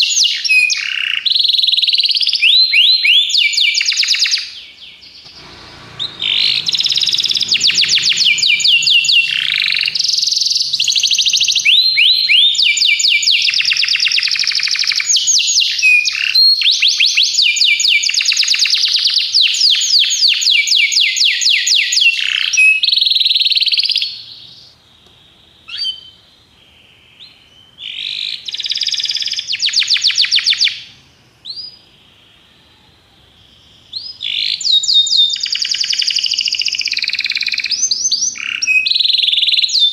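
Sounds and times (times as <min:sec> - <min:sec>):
canary singing trills: 0:00.0 - 0:24.8, 0:25.7 - 0:39.9
short bird chirps: 0:00.7 - 0:16.5.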